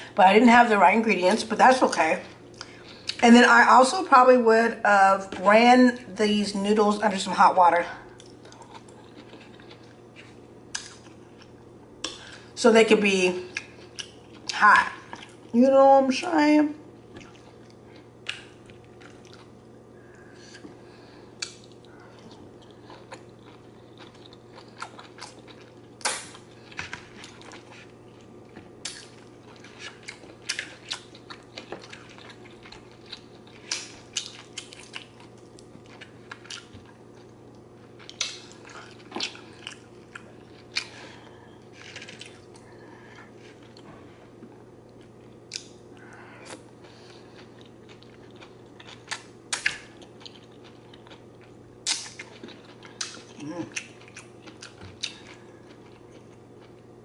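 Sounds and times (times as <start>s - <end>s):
faint steady hum: 0.0s - 57.0s
wet chewing and mouth smacks: 8.1s - 12.4s, 17.1s - 19.5s, 21.4s - 41.0s, 41.6s - 42.7s, 44.9s - 56.8s.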